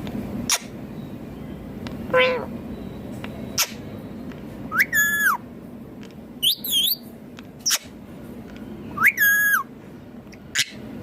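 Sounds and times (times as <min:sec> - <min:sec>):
parakeet chirping: 0:02.1 - 0:02.5, 0:03.5 - 0:03.9, 0:04.7 - 0:05.4, 0:06.4 - 0:08.0, 0:09.0 - 0:09.7, 0:10.5 - 0:10.9
parakeet whistling call: 0:04.7 - 0:05.4, 0:06.4 - 0:07.9, 0:09.0 - 0:09.7.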